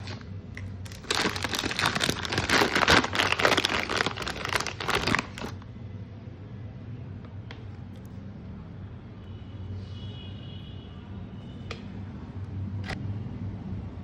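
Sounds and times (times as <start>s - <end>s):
plastic packet crinkling: 0.0s - 5.6s.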